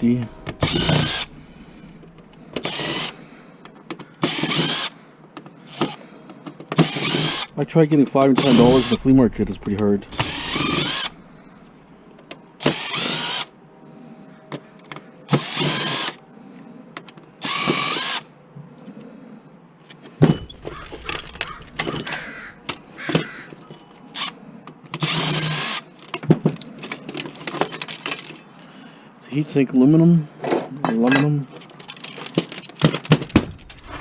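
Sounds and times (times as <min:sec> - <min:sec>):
cordless drill backing out screws: 0:00.4 - 0:01.3, 0:02.6 - 0:03.2, 0:04.1 - 0:04.9, 0:08.4 - 0:09.0, 0:10.1 - 0:11.1
clicks and knocks of handled parts: 0:03.6 - 0:04.4, 0:25.9 - 0:28.6, 0:30.4 - 0:34.0.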